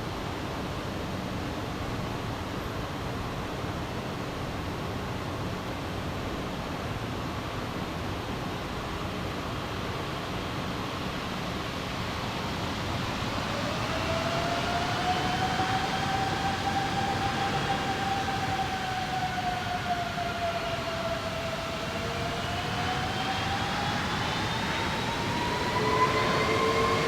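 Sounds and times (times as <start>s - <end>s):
jet engine whine: 1.0s - 27.0s
jet engines running: 12.2s - 27.0s.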